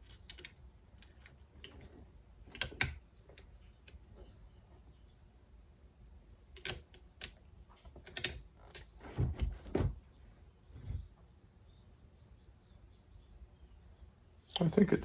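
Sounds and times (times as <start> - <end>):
metal parts clicking and knocking: 0.0 - 4.0, 6.5 - 9.6
dull thumps: 9.0 - 10.0.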